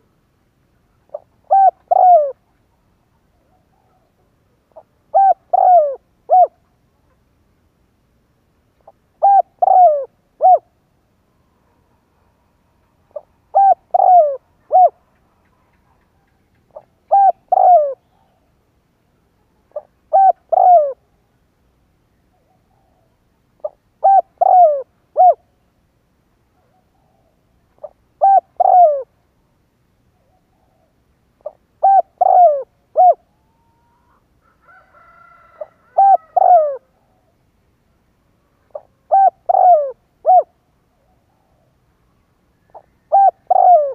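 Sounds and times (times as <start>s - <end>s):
dove cooing: 1.0s - 2.6s, 3.3s - 6.6s, 8.8s - 10.8s, 13.0s - 18.5s, 19.4s - 21.2s, 22.3s - 25.5s, 26.6s - 29.2s, 30.2s - 37.4s, 38.4s - 41.8s, 42.7s - 43.9s.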